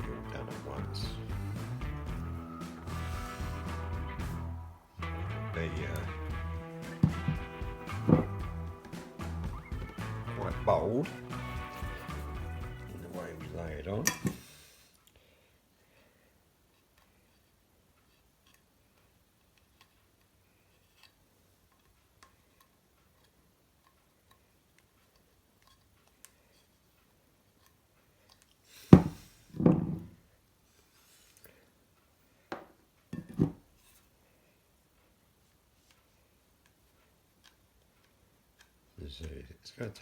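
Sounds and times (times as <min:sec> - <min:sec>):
knocks and bumps: 0:06.0 - 0:13.0, 0:29.0 - 0:30.1.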